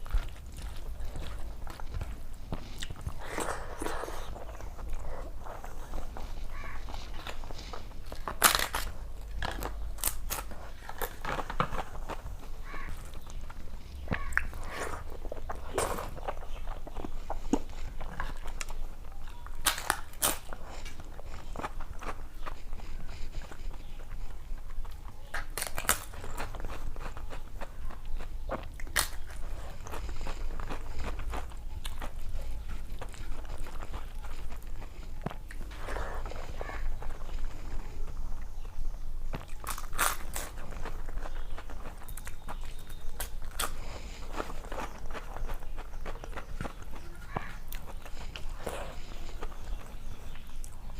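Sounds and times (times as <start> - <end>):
person chewing crisp food: 0.0 - 50.9.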